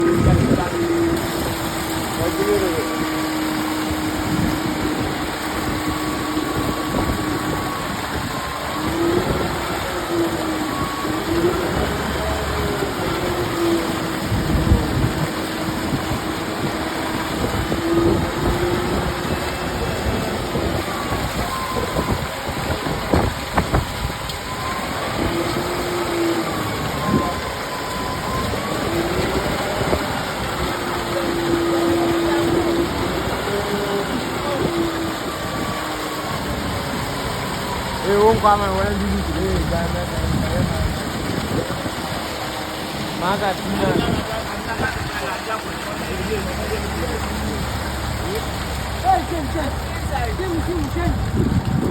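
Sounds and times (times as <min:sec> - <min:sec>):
concrete mixer engine hum: 0:00.0 - 0:51.9.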